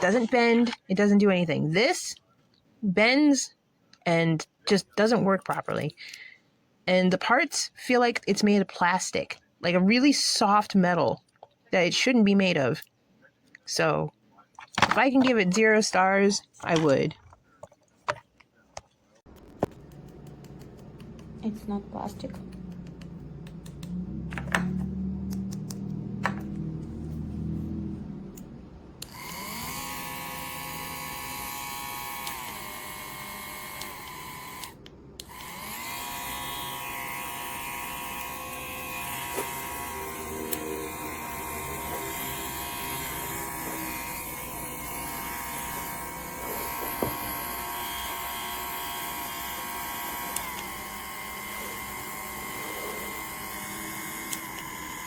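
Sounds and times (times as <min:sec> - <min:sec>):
compressor motor whining: 0:29.0 - 0:55.0.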